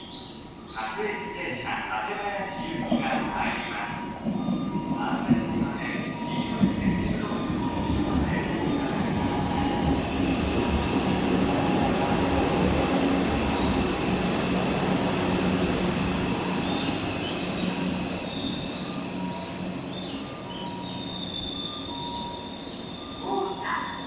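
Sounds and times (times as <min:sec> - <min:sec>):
electric train rumble: 0:00.0 - 0:24.0
high-pitched wheel squeals: 0:16.4 - 0:24.0.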